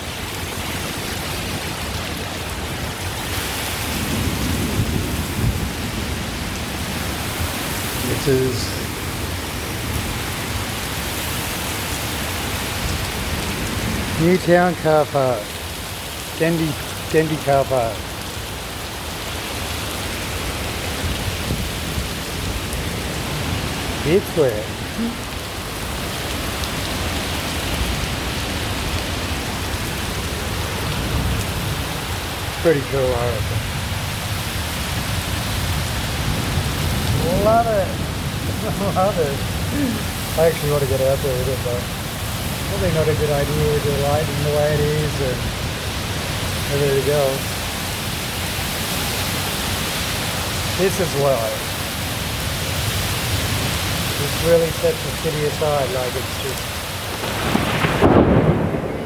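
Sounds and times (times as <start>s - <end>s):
torrential rain hissing: 0.0s - 59.0s.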